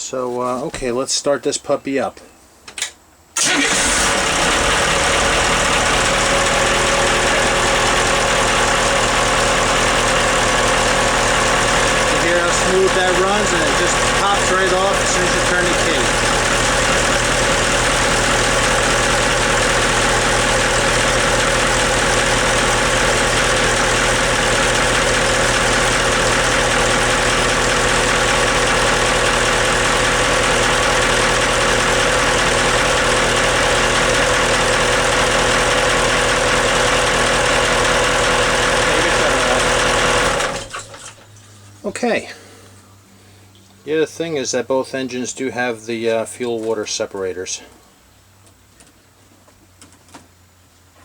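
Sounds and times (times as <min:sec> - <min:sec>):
diesel engine idling: 0:03.4 - 0:40.8.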